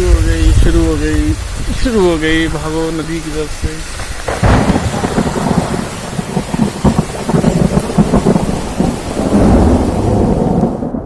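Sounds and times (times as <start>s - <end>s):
heavy rain: 0.0s - 11.0s
rumbling thunder: 3.9s - 11.0s.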